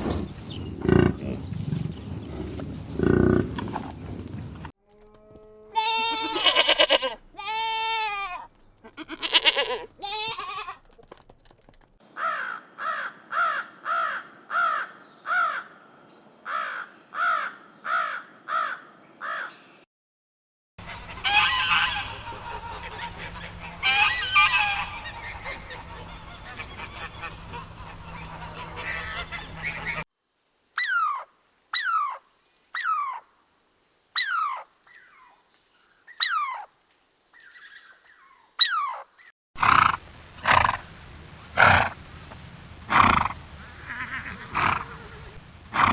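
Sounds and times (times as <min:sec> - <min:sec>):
goose-like honking calls: 0:20.8 - 0:30.0
steady background noise: 0:20.8 - 0:30.7.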